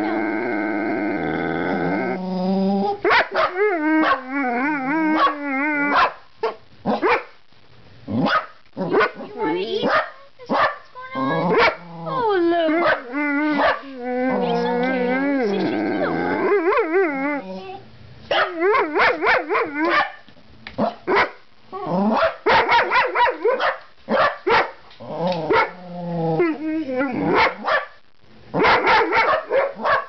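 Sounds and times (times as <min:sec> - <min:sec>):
dogs barking: 0:03.0 - 0:04.3, 0:05.2 - 0:07.4, 0:08.2 - 0:11.8, 0:12.7 - 0:13.9, 0:18.3 - 0:21.4, 0:22.1 - 0:24.8, 0:25.5 - 0:25.8, 0:27.3 - 0:28.0, 0:28.6 - 0:30.0
dogs whining yelps: 0:03.1 - 0:04.2, 0:04.8 - 0:06.1.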